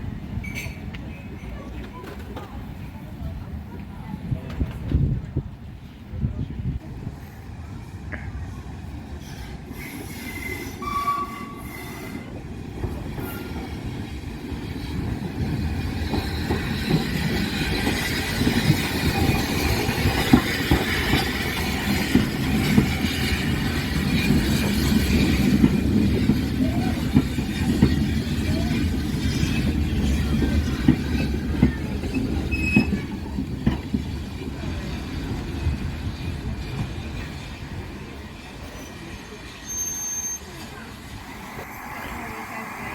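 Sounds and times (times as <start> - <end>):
train rumbling on track: 0.0 - 42.9
high wheel squeal: 9.4 - 12.3, 32.5 - 33.1, 38.8 - 40.7.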